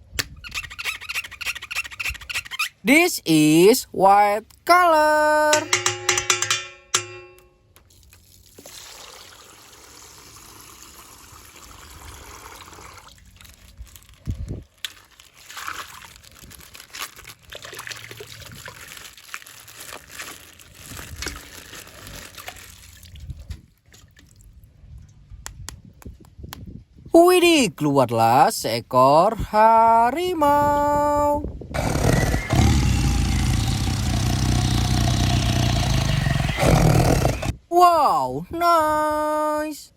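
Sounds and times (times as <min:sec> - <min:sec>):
water dripping and splashing: 0:07.8 - 0:10.0, 0:12.6 - 0:24.7
water pouring from plastic bag: 0:07.9 - 0:23.4
plastic bag crinkling: 0:13.5 - 0:17.6, 0:18.4 - 0:22.8.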